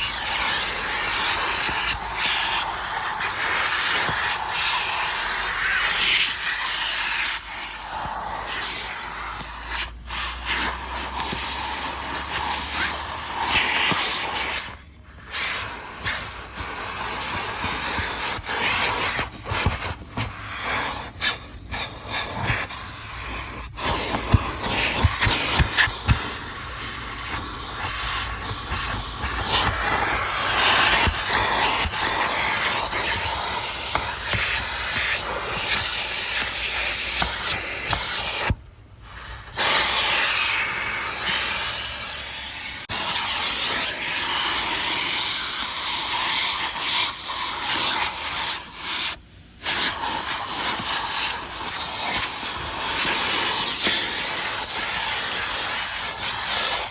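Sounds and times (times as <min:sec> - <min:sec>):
vacuum hose sucking air: 0:00.0 - 0:56.9.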